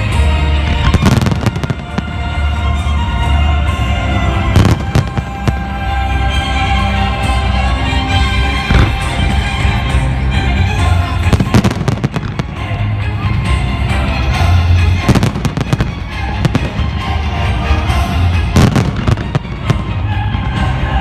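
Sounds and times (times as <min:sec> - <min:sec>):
loud music: 0:00.0 - 0:21.0
fireworks bursting: 0:00.6 - 0:06.9, 0:08.5 - 0:09.9, 0:10.7 - 0:13.3, 0:14.7 - 0:21.0.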